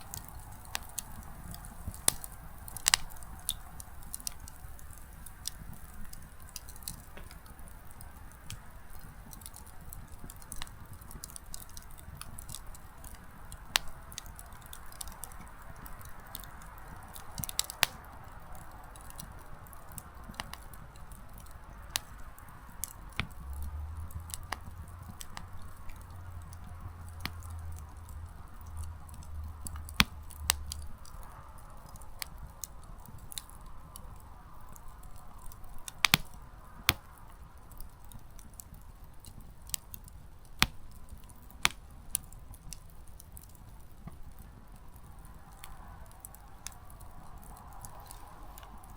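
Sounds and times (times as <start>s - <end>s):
hiss of flame: 0.0s - 18.0s, 43.9s - 48.9s
campfire crackling: 0.0s - 48.9s
firewood popping and snapping: 0.0s - 48.9s.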